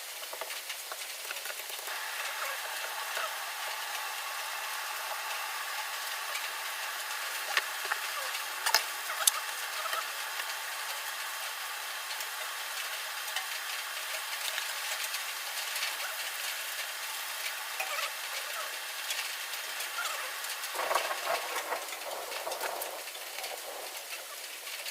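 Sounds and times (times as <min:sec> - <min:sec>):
heavy rain falling: 0:00.0 - 0:24.9
sharp drip-like clicks: 0:05.1 - 0:24.9.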